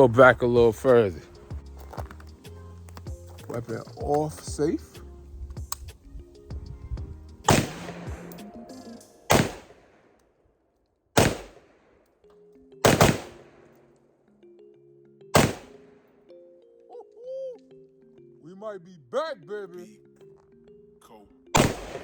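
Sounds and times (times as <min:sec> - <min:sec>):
rifle gunshots: 0:07.5 - 0:08.4, 0:09.3 - 0:10.0, 0:11.2 - 0:11.8, 0:12.8 - 0:13.6, 0:15.4 - 0:15.8, 0:21.6 - 0:22.0.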